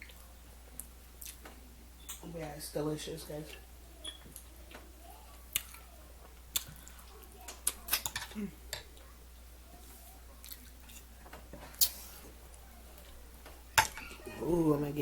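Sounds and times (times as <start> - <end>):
person chewing food: 0.0 - 1.4, 5.4 - 9.1, 10.3 - 13.2.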